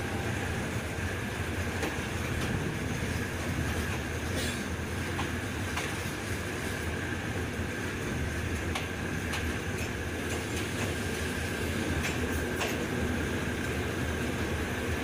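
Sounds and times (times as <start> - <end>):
train wheels rumbling on rail: 0.0 - 15.0
wheels clicking over rail joints: 1.6 - 6.2, 8.1 - 13.0.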